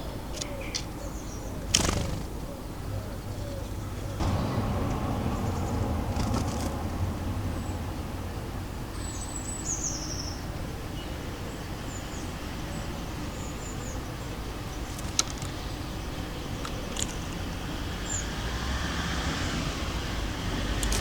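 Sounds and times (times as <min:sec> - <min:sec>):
distant city traffic rumble: 0:00.0 - 0:21.0
songbirds chirping: 0:00.0 - 0:21.0
sharp clicks: 0:14.9 - 0:15.8, 0:16.6 - 0:17.5, 0:20.7 - 0:21.0.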